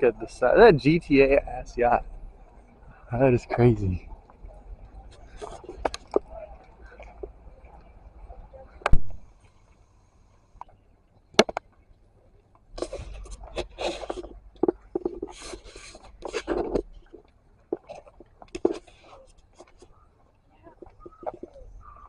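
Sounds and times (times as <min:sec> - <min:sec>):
scraping against microphone: 0:05.1 - 0:07.3, 0:12.8 - 0:20.0, 0:20.6 - 0:21.8
phone handling clicks and knocks: 0:11.4 - 0:11.6.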